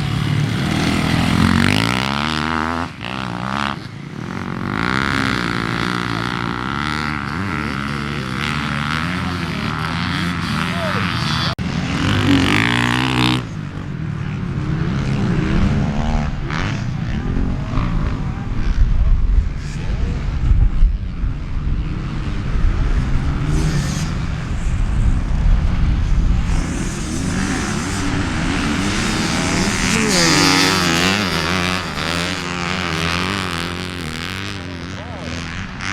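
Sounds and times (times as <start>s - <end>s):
dirt bike engine revving: 0.0s - 18.8s, 19.4s - 35.9s
wind buffeting microphone: 14.9s - 34.5s.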